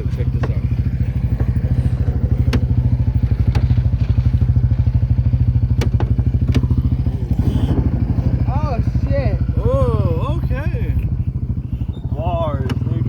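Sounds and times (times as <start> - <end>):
truck engine rumbling: 0.0 - 13.0
sharp knocks: 2.3 - 4.3, 5.7 - 6.9.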